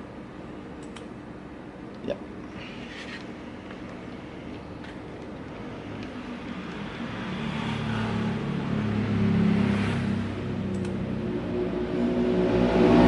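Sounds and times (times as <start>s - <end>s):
low motor hum: 3.3s - 13.0s.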